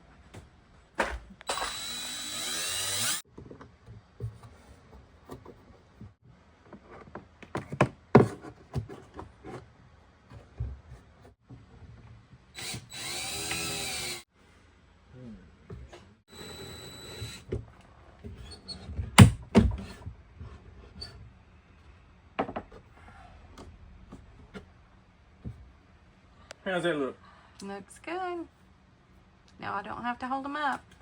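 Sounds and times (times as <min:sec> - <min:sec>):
power drill driving screws: 0:01.5 - 0:03.2, 0:12.6 - 0:14.2, 0:16.3 - 0:17.5.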